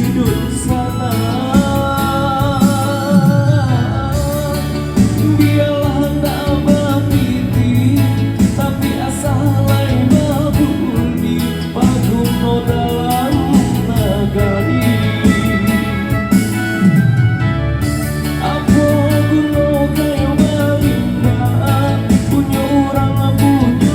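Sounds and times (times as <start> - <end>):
live band with singer: 0.0 - 23.9.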